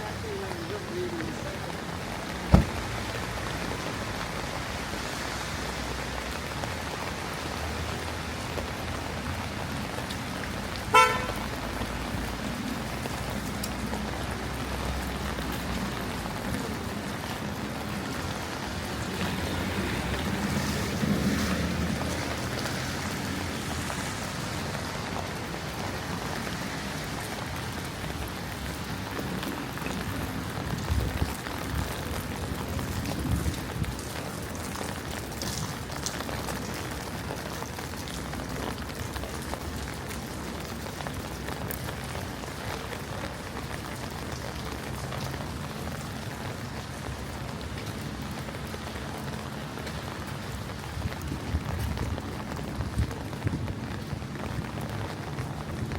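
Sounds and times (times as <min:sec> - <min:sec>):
rain: 0:00.0 - 0:55.9
traffic on wet street: 0:00.0 - 0:55.9
sharp knock: 0:02.5 - 0:02.8
short car horn toot: 0:10.9 - 0:11.4.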